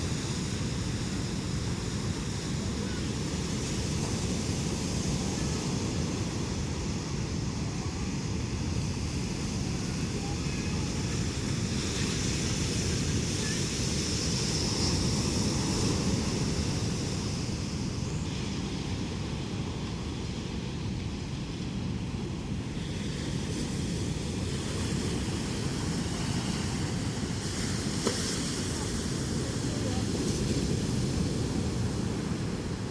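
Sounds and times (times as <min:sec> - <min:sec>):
ocean surf breaking: 0:22.6 - 0:32.9.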